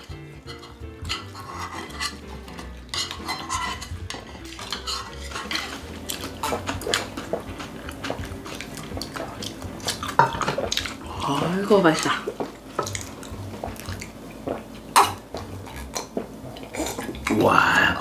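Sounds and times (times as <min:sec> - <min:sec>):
utensils clinking on plates: 0:00.0 - 0:12.2.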